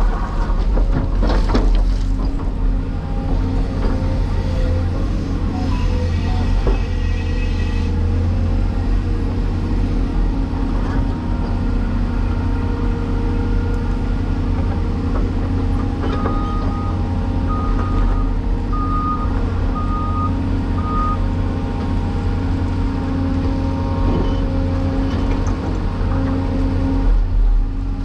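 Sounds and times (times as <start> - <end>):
diesel engine running: 2.1 - 28.0
backup alarm beeping: 5.5 - 7.0.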